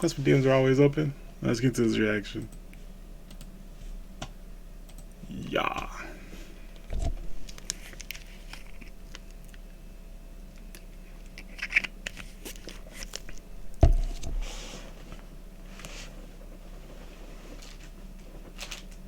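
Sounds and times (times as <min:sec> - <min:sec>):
small clicks and crinkling: 0:06.7 - 0:09.8, 0:10.4 - 0:13.5, 0:17.5 - 0:19.0.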